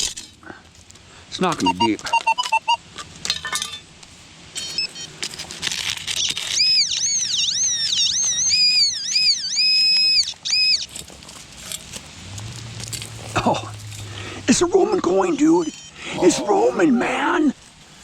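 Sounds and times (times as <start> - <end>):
brief beeps: 1.6 - 2.8, 4.6 - 5.2, 15.6 - 16.0
metal detector warbling tone: 1.6 - 2.8, 4.6 - 5.1, 6.2 - 10.9, 14.8 - 16.0.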